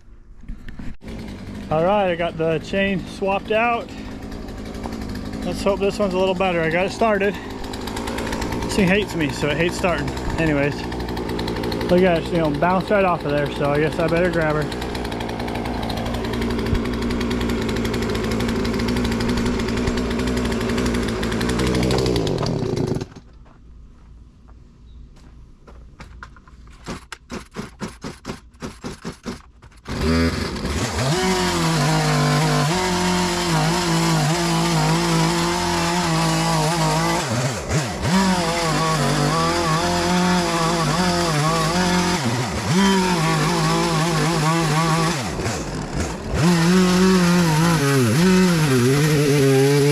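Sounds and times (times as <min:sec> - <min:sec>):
chainsaw running and cutting: 0:00.8 - 0:23.3, 0:26.8 - 0:49.9
starter cord pulls: 0:02.6 - 0:23.4, 0:26.0 - 0:31.2.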